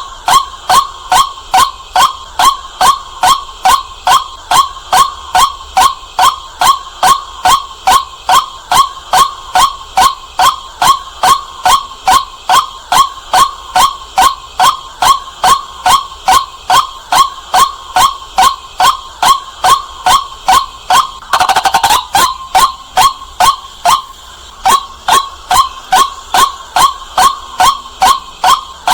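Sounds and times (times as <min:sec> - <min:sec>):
waterhen calling: 0:21.2 - 0:26.1.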